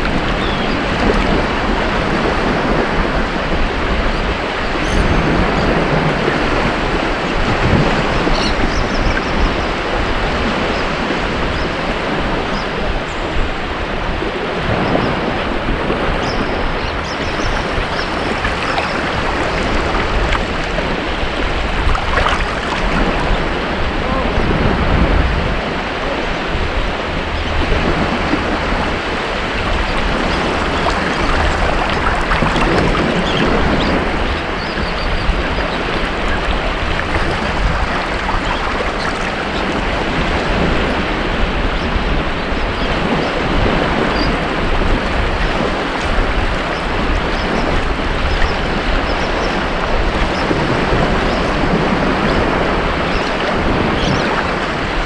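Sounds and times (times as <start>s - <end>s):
ocean surf washing onto beach: 9.9s - 41.8s.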